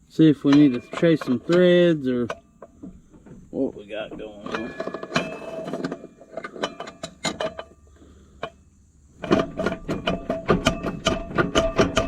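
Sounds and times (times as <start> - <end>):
rapid ringing metallic clicks: 0.4 - 2.8
hand tools knocking on metal: 0.4 - 3.0, 9.3 - 12.0.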